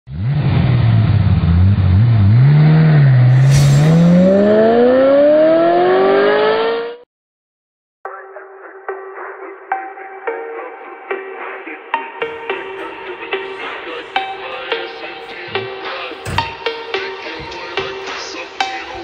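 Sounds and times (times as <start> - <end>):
car engine accelerating: 0.1 - 7.0
sharp exhaust crack: 3.3 - 5.2.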